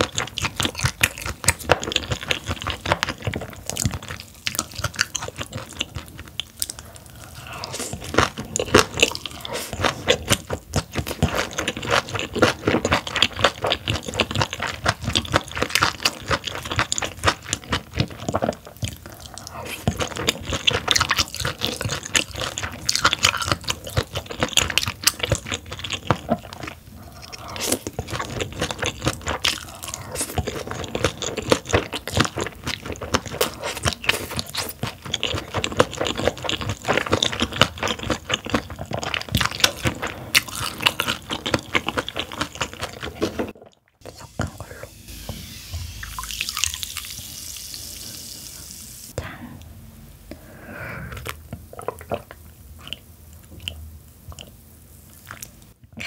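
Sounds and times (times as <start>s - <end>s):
crunchy chewing: 0.0s - 44.7s.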